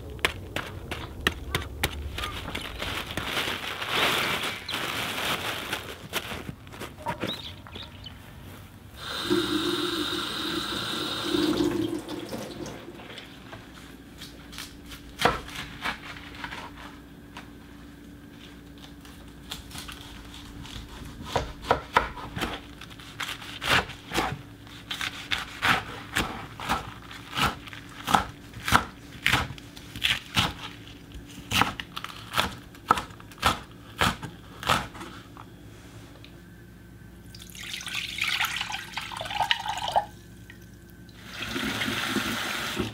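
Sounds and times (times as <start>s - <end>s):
knife chopping on wooden board: 21.2s - 22.6s.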